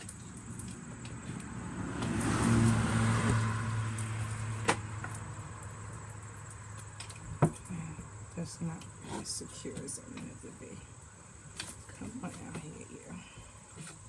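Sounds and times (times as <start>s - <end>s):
vehicle passing on road: 0.0s - 9.2s.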